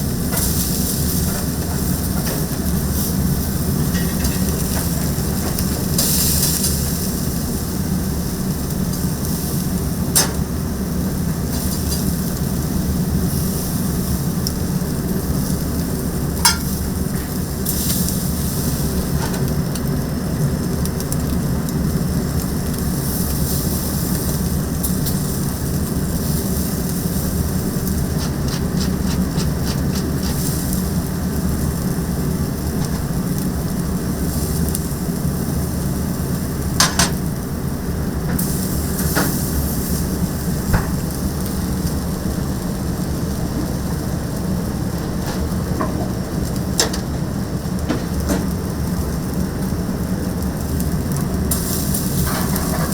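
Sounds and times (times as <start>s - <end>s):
chicken sizzling: 0.0s - 52.9s.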